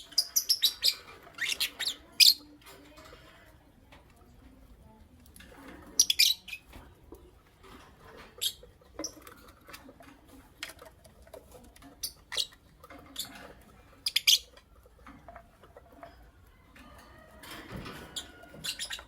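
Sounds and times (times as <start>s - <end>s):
lovebirds chirping: 0.0s - 2.6s, 5.8s - 6.9s, 8.1s - 9.3s, 11.8s - 14.8s, 17.9s - 19.0s.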